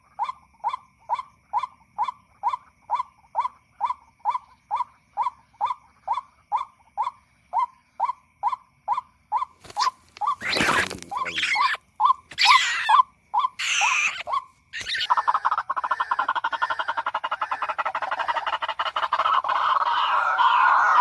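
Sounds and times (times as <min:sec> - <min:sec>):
waterhen kwak calls: 0:09.4 - 0:21.0
rustling noise: 0:09.6 - 0:11.3.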